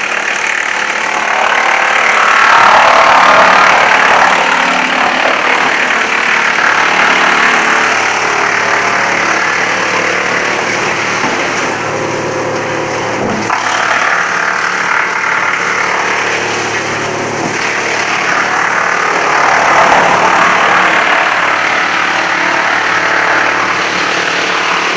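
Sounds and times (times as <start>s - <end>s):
wood chipper engine drone: 0.0s - 24.9s
wood chipper rushing noise: 0.0s - 24.9s.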